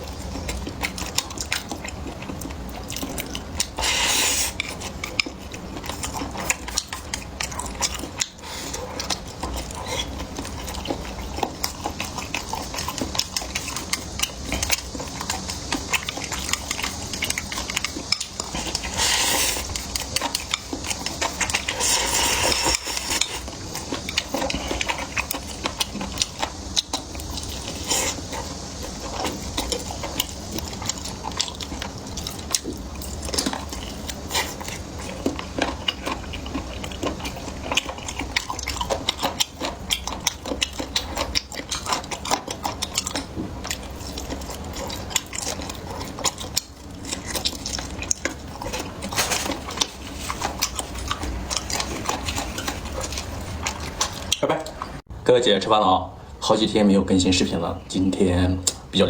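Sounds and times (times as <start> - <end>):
chewing: 0.0 - 55.1, 58.6 - 58.9
utensils scraping bowl and plate: 43.9 - 55.0.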